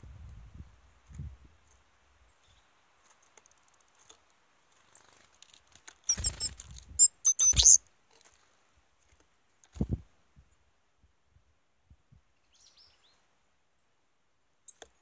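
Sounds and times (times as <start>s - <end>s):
bird chirping: 6.1s - 7.8s.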